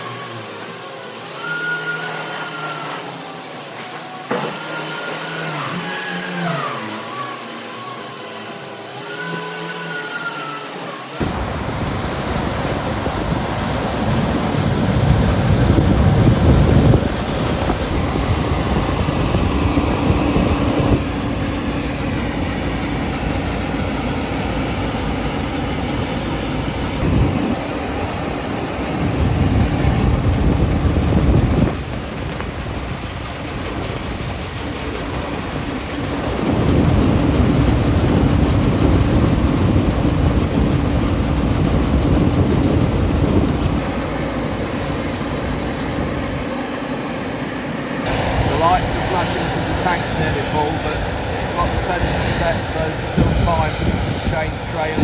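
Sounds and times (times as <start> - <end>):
diesel farm machinery running: 11.2 - 55.0.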